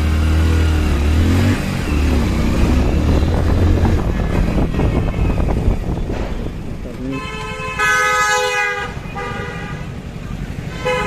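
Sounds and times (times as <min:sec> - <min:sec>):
motorcycle engine accelerating: 0:00.0 - 0:07.1
road and wind noise: 0:00.0 - 0:11.0.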